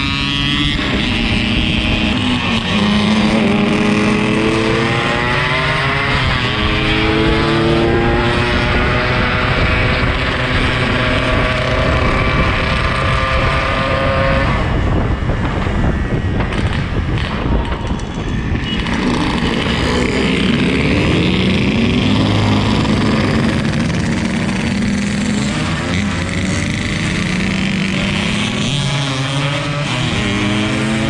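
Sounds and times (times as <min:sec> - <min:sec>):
two-stroke motorcycle engine running: 0:14.8 - 0:31.0.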